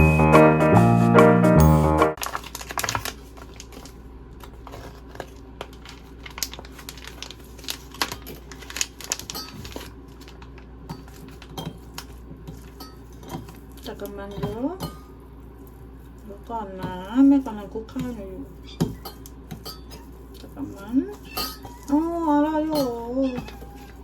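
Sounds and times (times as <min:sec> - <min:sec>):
music jingle: 0:00.0 - 0:02.2.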